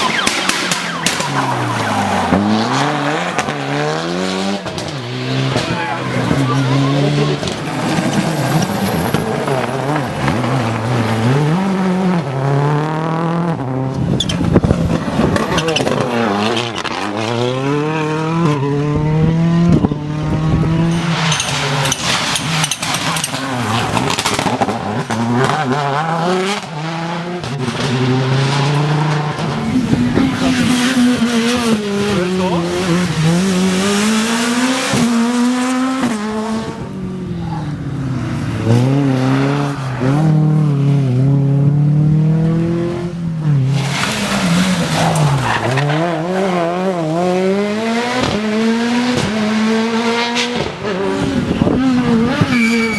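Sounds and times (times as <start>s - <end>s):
sharp cracks: 0.0s - 2.4s
rally car engines revving: 0.0s - 52.9s.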